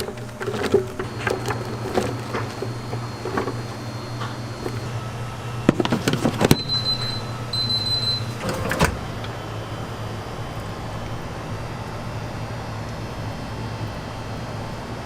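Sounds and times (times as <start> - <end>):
clattering knocks: 0.0 - 4.9
low machine hum: 0.0 - 15.0.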